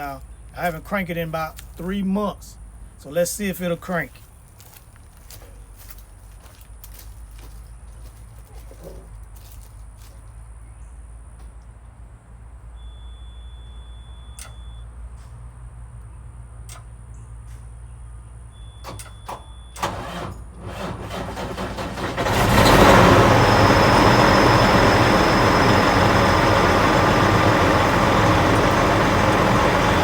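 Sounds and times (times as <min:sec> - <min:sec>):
short beeps: 0:12.8 - 0:14.9
diesel engine cranking and running: 0:18.9 - 0:30.0.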